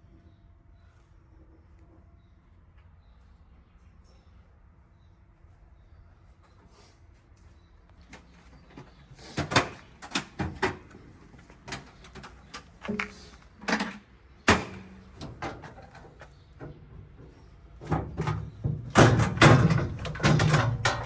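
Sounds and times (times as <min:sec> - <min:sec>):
sharp knocks and clunks: 0:12.8 - 0:21.0.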